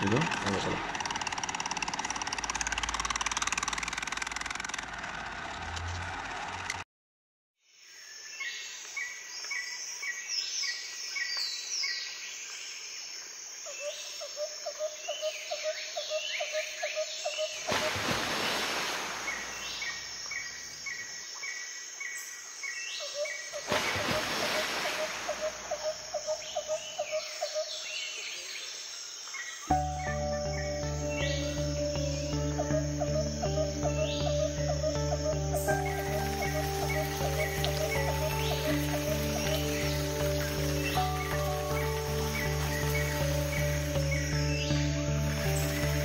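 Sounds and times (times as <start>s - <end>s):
birds chirping and whistling: 29.7s - 46.0s.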